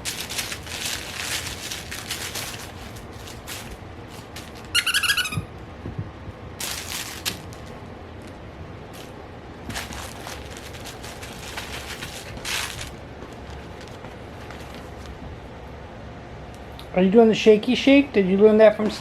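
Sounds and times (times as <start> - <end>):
puppy rustling and scuffling: 0.0 - 15.4
puppy squeaking: 4.7 - 5.5.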